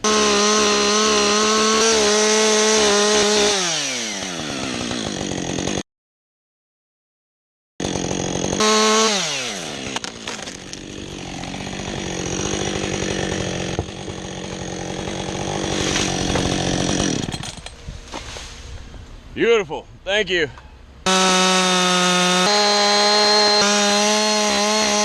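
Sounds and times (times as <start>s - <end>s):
chainsaw revving: 0.0s - 5.8s, 7.8s - 17.6s, 21.0s - 25.0s.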